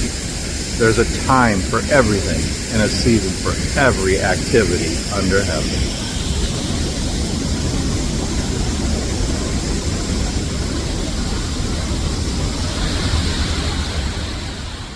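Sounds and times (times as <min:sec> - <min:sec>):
waterfall rushing: 0:00.8 - 0:06.5.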